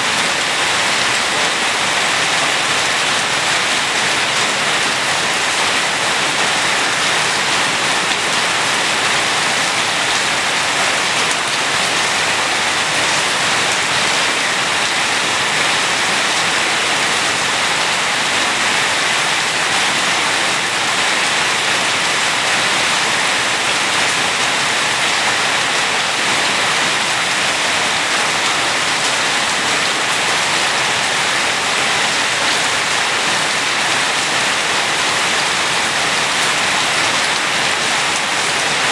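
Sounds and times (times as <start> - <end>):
heavy rain on hard surfaces: 0.0 - 38.9.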